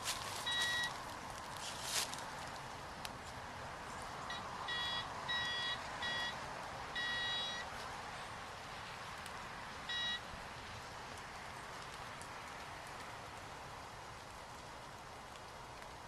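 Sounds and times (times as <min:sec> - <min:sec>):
metal detector beeps: 0:00.4 - 0:01.0, 0:04.3 - 0:06.4, 0:07.0 - 0:07.6, 0:09.9 - 0:10.2.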